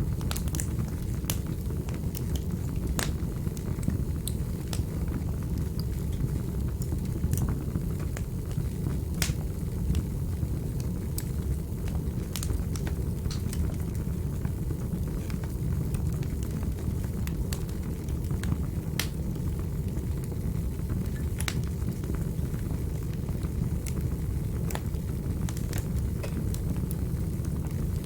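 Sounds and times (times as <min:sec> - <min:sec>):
fire crackling and popping: 0:00.0 - 0:28.0
low rumble of flames: 0:00.0 - 0:28.0.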